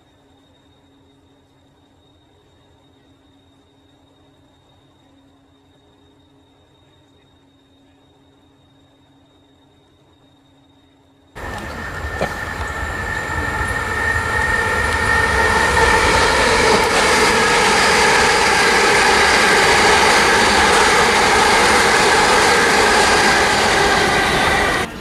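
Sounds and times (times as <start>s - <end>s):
electric train whine: 0.0s - 25.0s
train wheels rushing on rail: 11.4s - 25.0s.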